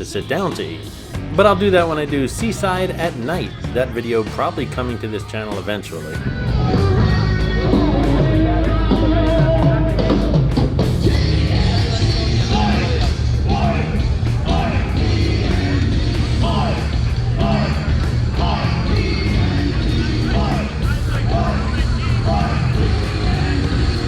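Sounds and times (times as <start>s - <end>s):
bass guitar: 0.0s - 24.0s
person singing: 0.0s - 24.0s
drum beat: 5.9s - 24.0s.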